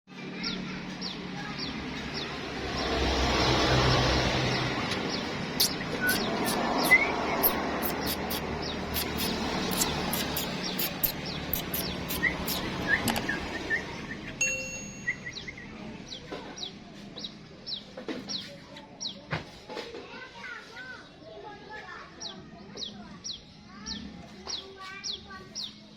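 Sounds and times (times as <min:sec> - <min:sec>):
steady background noise: 0:00.1 - 0:14.4
bird chirping: 0:04.2 - 0:19.2.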